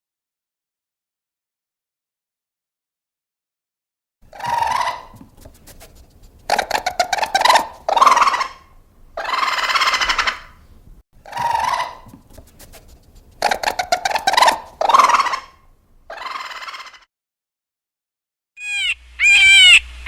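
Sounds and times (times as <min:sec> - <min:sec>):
animal harsh cries: 0:04.3 - 0:05.2, 0:06.5 - 0:10.6, 0:11.2 - 0:12.2, 0:13.4 - 0:17.1, 0:18.6 - 0:19.9
animal rattling call: 0:04.3 - 0:10.6, 0:11.3 - 0:17.0.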